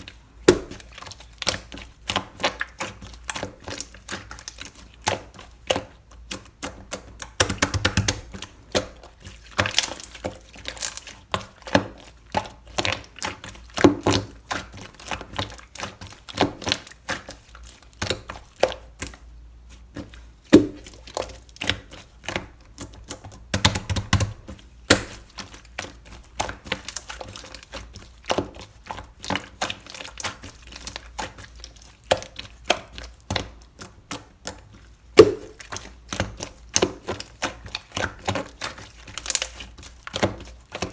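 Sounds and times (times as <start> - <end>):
slime clicking and popping: 23.5 - 25.2, 35.2 - 37.5.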